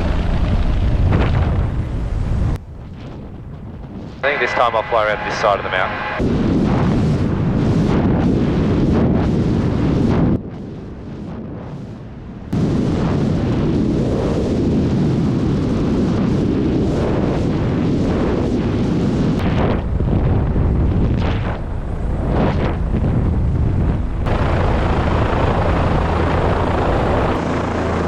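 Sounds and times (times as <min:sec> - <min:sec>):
helicopter rotor noise: 0:02.6 - 0:06.2, 0:21.6 - 0:28.0.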